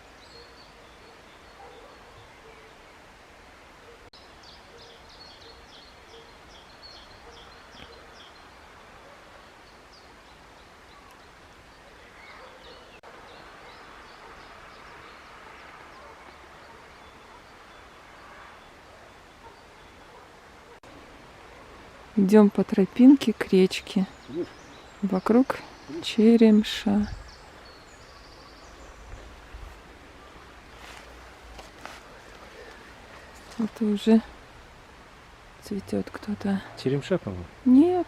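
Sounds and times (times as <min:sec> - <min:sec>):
steady outdoor hiss: 0:00.0 - 0:38.0
small birds chirping: 0:03.9 - 0:20.9, 0:22.2 - 0:35.0.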